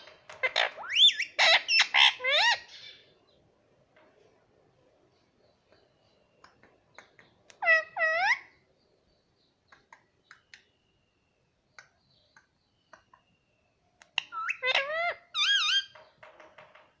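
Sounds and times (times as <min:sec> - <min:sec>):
parrot clicks and chirps: 0:05.7 - 0:07.7, 0:09.7 - 0:10.8, 0:11.7 - 0:13.3, 0:14.0 - 0:14.8.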